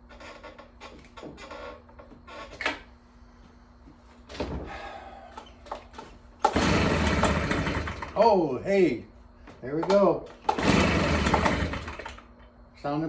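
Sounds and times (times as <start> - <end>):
recoil starter pulls: 5.4 - 8.4, 9.7 - 12.3
leaf blower engine running loudly: 6.5 - 8.4, 10.5 - 12.2.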